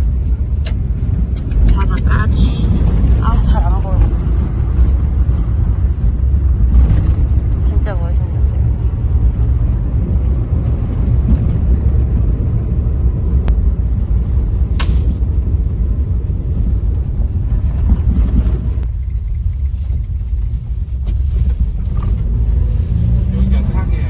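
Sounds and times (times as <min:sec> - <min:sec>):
vehicle rumble from inside cabin: 0:00.0 - 0:24.0.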